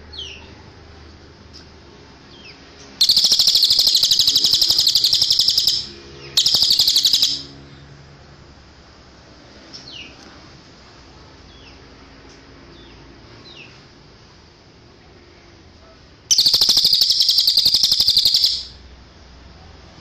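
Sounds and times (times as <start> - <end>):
bird singing high trills: 3.0 - 7.7, 16.3 - 18.8.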